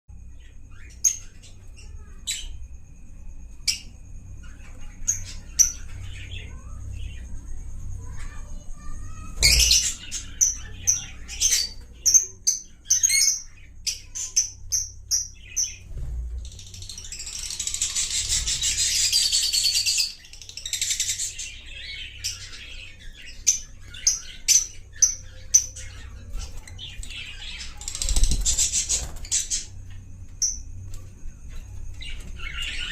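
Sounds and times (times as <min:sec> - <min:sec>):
lovebirds chirping: 0:03.6 - 0:30.8
birds squawking: 0:08.0 - 0:30.7.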